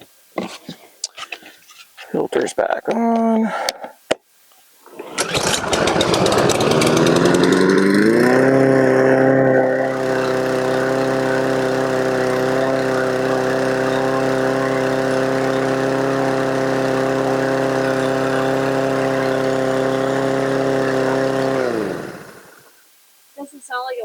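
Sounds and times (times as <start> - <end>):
lawn mower engine running: 4.8 - 22.7.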